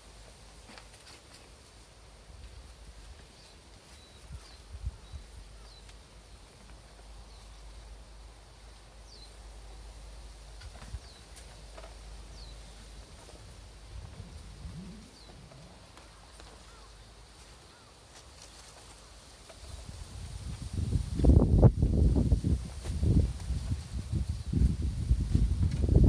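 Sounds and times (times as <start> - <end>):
low rumble: 13.9 - 16.2
small bird chirping: 14.0 - 18.7.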